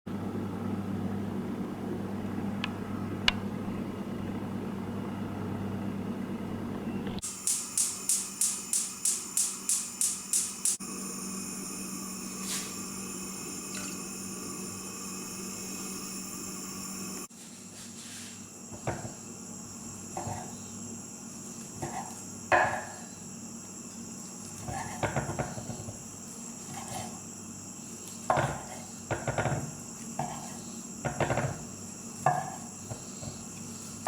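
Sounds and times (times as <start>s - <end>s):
steady hum: 0.1s - 17.4s.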